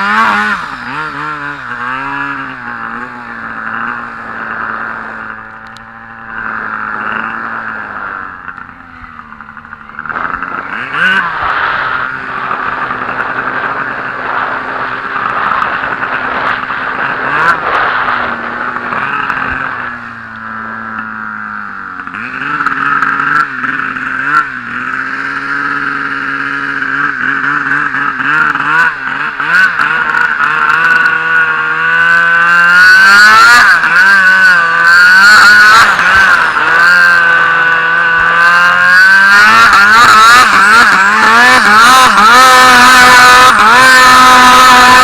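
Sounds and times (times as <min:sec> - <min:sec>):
snowmobile engine running hard: 0:00.0 - 0:45.0.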